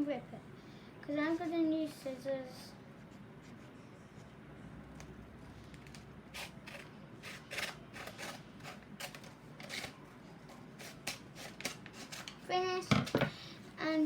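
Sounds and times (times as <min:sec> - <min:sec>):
scissors snipping paper: 0:06.4 - 0:10.0, 0:10.8 - 0:12.4.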